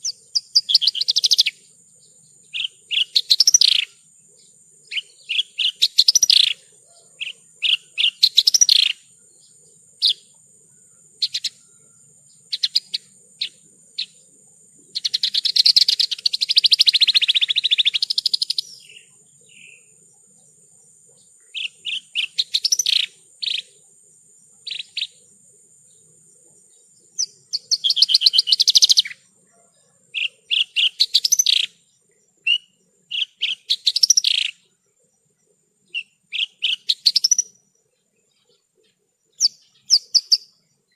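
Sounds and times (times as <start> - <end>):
bird high chirps: 0.0 - 10.4, 11.2 - 14.2, 14.8 - 19.9, 21.1 - 23.8, 24.6 - 25.2, 26.7 - 29.2, 30.2 - 31.8, 32.4 - 34.7, 35.9 - 37.6, 38.3 - 40.6
bird fast trill: 2.5 - 4.0, 4.9 - 9.0, 21.6 - 23.8, 27.2 - 29.2, 30.2 - 31.8, 32.5 - 34.6, 35.9 - 37.6, 39.4 - 40.5.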